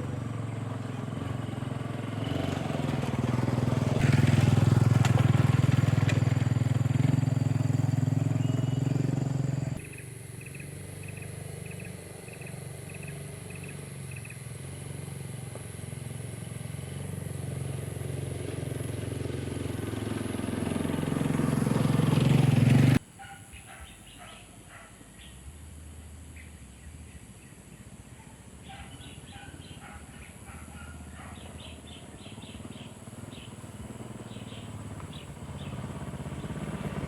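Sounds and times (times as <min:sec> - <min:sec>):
vehicle engine running: 0:00.0 - 0:23.2, 0:29.0 - 0:37.0
bird chirps: 0:08.2 - 0:14.4, 0:28.7 - 0:36.7.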